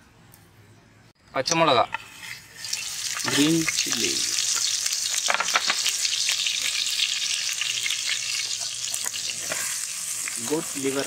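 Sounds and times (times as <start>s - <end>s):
chillies sizzling in hot oil: 1.6s - 11.0s.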